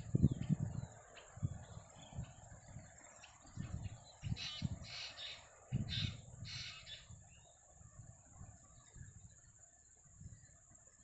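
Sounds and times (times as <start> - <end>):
high insect drone: 0.0 - 11.0
bird harsh rasping calls: 4.2 - 7.1.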